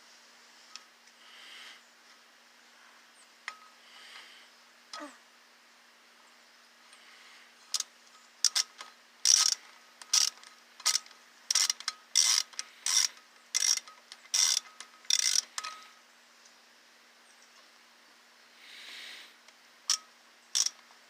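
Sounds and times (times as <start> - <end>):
ratchet wrench clicking: 7.7 - 15.8, 19.9 - 20.8.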